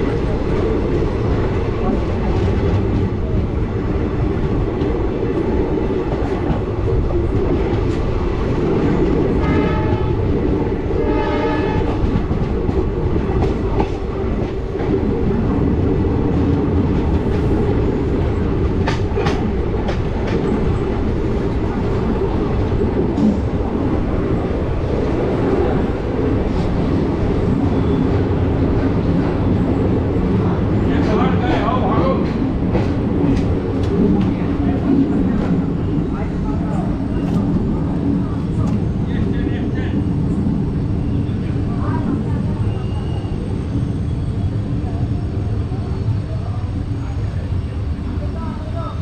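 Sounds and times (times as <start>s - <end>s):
train rumbling and wheel clatter: 0.0s - 49.0s
locomotive horn blasts: 9.4s - 10.2s, 11.0s - 12.0s.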